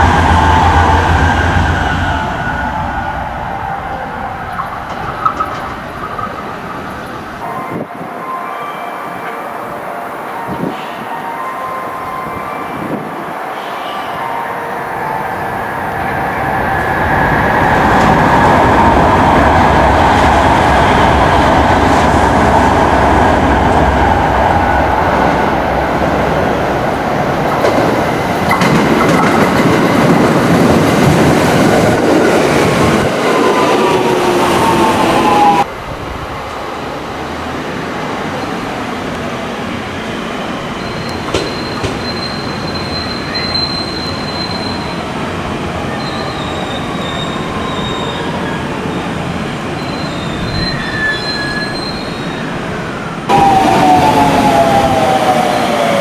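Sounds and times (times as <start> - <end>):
train wheels rumbling on rails: 0.0 - 8.1, 15.0 - 56.0
high squealing tones: 49.8 - 52.6.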